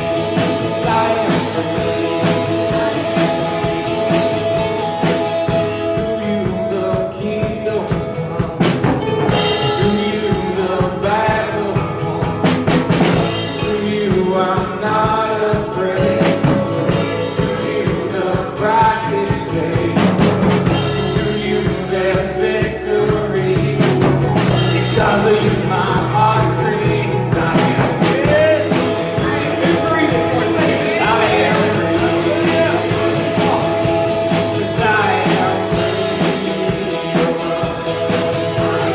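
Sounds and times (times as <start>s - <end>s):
singing: 0.0s - 4.4s, 9.4s - 12.7s, 21.0s - 38.9s
band playing drums and guitar: 0.0s - 38.9s.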